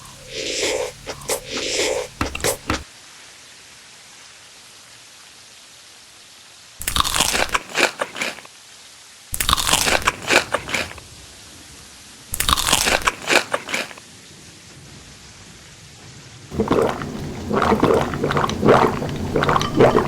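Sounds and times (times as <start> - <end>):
crunchy food chewing: 0.0 - 2.9, 6.8 - 8.5, 9.4 - 11.0, 12.4 - 14.0, 16.5 - 20.0.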